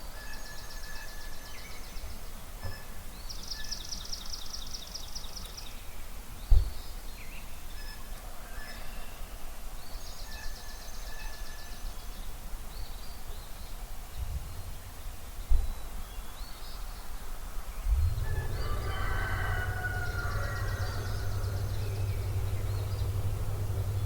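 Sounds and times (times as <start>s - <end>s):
songbirds trilling and chirping: 17.7s - 24.0s
loud low thumps: 17.8s - 24.0s.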